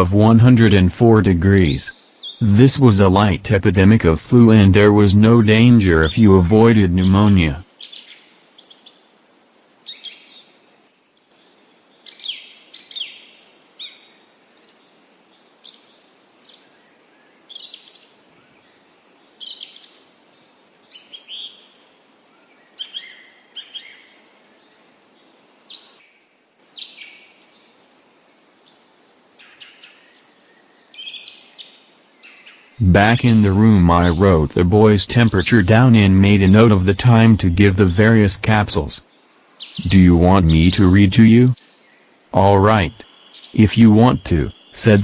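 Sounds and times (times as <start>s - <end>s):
birds chirping and singing: 0.0s - 9.0s, 29.6s - 39.0s, 39.6s - 45.0s
faint steady hiss: 0.0s - 45.0s.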